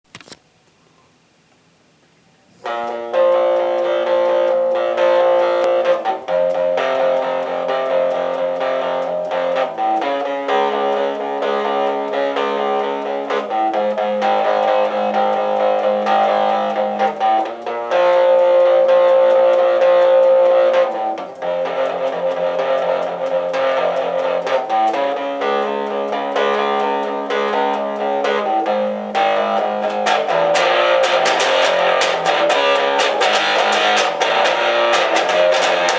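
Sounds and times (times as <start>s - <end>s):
electric guitar ringing chords: 2.6s - 35.9s
sharp percussive strokes: 21.2s - 35.9s.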